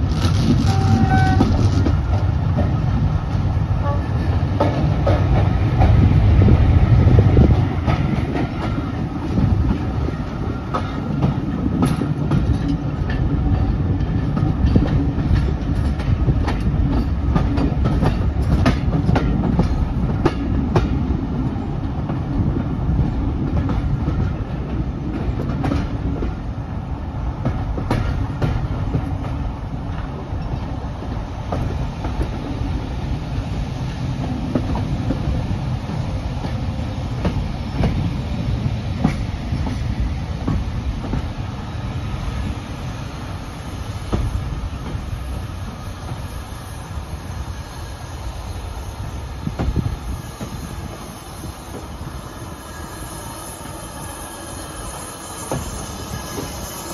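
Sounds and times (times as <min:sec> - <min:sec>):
train coach rumbling: 0:00.0 - 0:56.9
wheels clicking over rail joints: 0:07.4 - 0:21.0.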